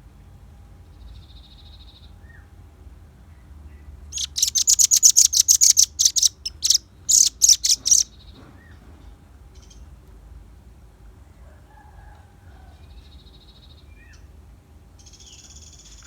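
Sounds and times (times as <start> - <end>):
bird singing sharp high notes: 4.2 - 8.1.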